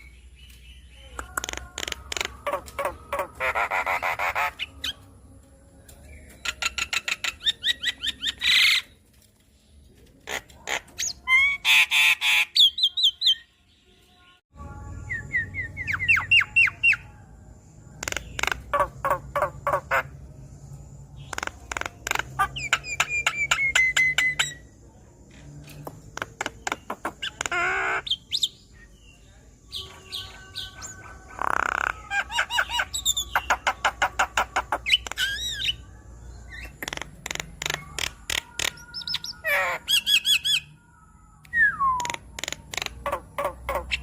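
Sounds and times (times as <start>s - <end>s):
myna bird singing: 0.0s - 44.0s.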